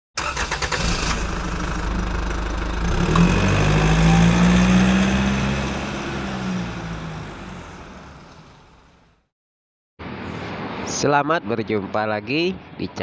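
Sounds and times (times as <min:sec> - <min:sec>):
car engine humming: 0:00.2 - 0:09.2.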